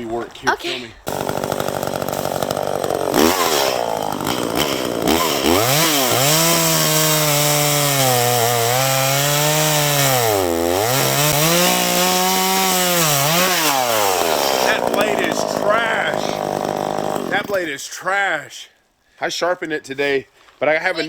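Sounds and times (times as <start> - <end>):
chainsaw cutting wood: 1.0 - 17.8.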